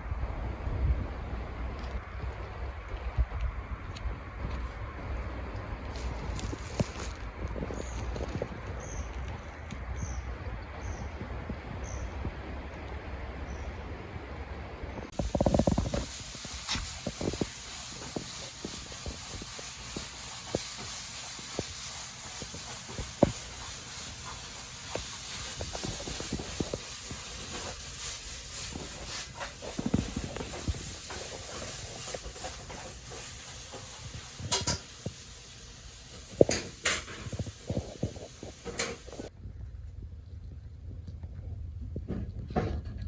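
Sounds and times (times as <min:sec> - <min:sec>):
steady high hiss: 0:15.1 - 0:39.3.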